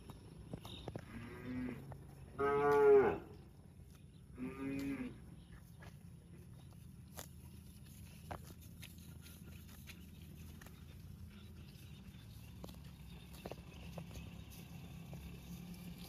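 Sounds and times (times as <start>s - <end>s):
cow mooing: 1.0s - 3.4s, 4.4s - 5.3s.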